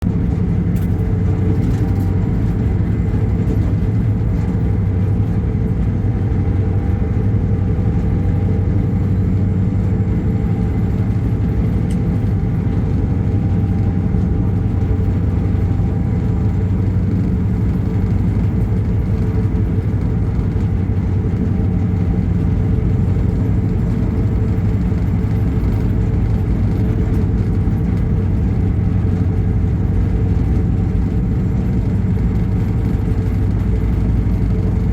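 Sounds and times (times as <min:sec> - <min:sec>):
vehicle engine droning: 0:00.0 - 0:34.9.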